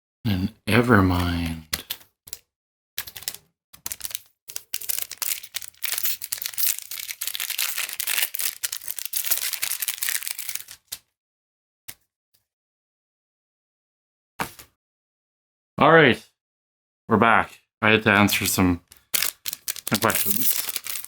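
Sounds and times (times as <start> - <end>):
cards and wrappers crinkling: 3.0 - 11.0, 18.9 - 21.0.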